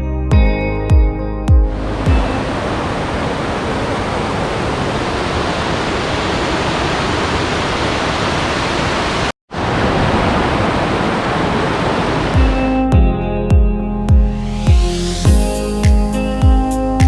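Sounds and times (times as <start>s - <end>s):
waterfall rushing: 1.7s - 12.8s.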